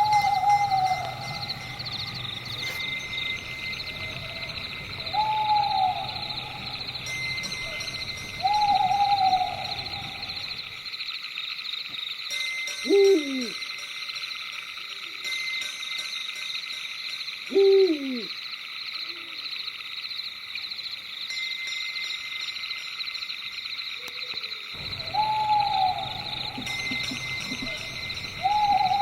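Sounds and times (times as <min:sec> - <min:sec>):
owl hooting: 0:00.0 - 0:02.9, 0:03.6 - 0:10.7, 0:12.9 - 0:13.6, 0:17.5 - 0:18.3, 0:24.8 - 0:29.0
high chirring chorus: 0:00.0 - 0:10.8, 0:24.8 - 0:29.0.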